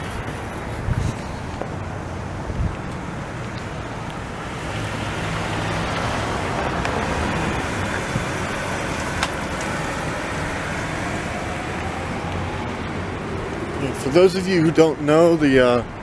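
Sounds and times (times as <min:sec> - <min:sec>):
car driving by: 0:03.9 - 0:14.2.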